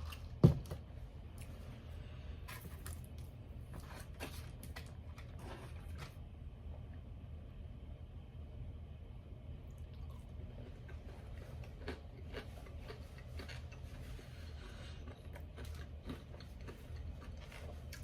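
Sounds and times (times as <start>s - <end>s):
faint low hum: 0.0s - 18.0s
chewing crunchy food: 9.7s - 18.0s.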